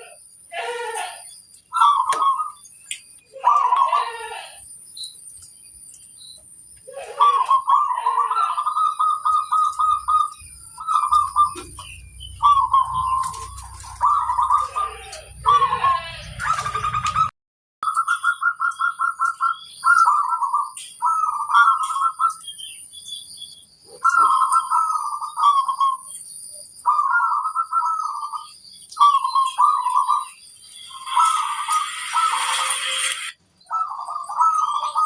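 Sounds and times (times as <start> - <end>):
doves cooing: 0.0 - 2.6, 3.3 - 4.6, 6.8 - 17.3, 23.9 - 26.1, 26.8 - 32.7, 33.7 - 35.0.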